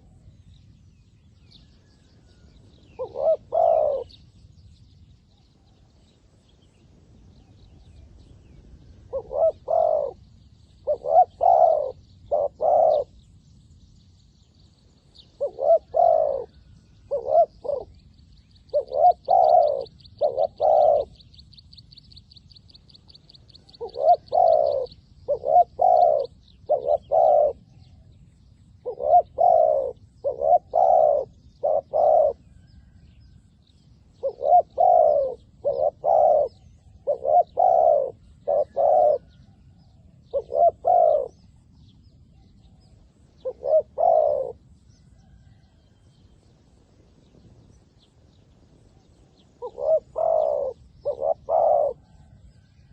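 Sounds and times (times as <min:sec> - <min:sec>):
dove cooing: 0:01.9 - 0:04.4, 0:09.0 - 0:13.3, 0:15.1 - 0:21.5, 0:22.8 - 0:28.1, 0:28.8 - 0:33.0, 0:34.1 - 0:41.6, 0:42.5 - 0:45.8, 0:48.3 - 0:52.9.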